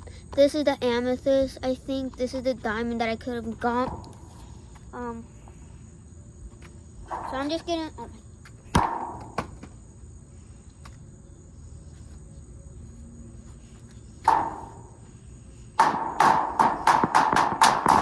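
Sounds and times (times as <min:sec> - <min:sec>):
hammer striking plaster block: 0:15.8 - 0:18.0.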